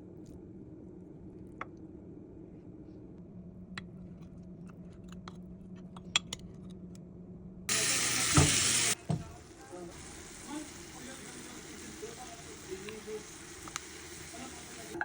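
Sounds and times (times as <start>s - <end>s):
food sizzling in a pan: 7.7s - 15.0s.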